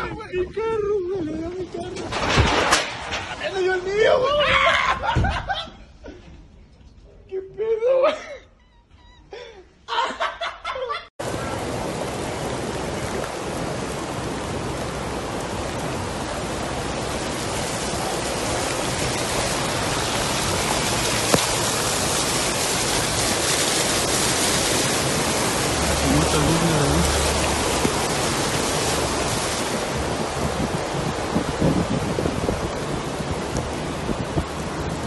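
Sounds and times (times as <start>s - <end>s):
wind: 0.0s - 35.0s
rain rushing: 0.8s - 5.5s, 11.2s - 35.0s
people laughing: 4.6s - 6.2s
voices: 25.9s - 27.4s.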